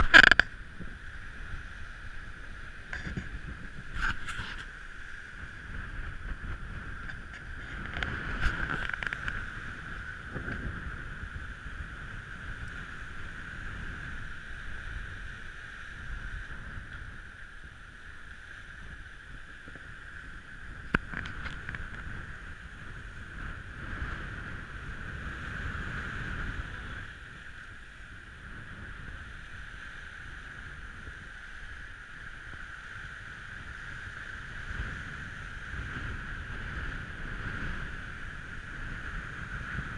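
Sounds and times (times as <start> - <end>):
high-pitched whine: 0.0 - 25.2
gale-force wind: 0.0 - 39.9.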